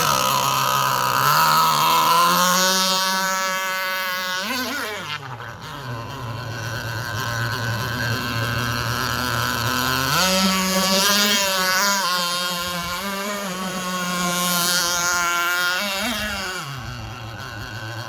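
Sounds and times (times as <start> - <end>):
small glow engine revving: 0.0 - 18.0.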